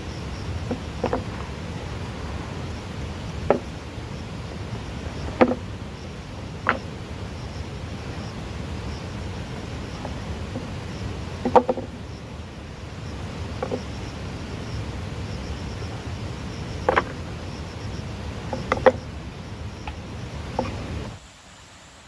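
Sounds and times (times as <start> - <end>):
faint insect trilling: 0.0 - 22.0
low background noise: 0.0 - 22.0
sharp knocks: 0.7 - 1.4, 3.4 - 3.7, 5.3 - 5.6.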